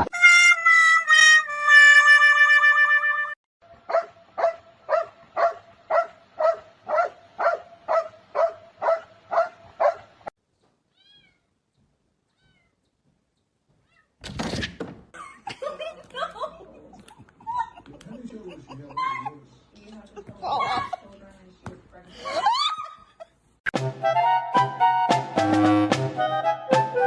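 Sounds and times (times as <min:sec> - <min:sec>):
cat meowing: 0:10.9 - 0:11.5, 0:12.3 - 0:12.8.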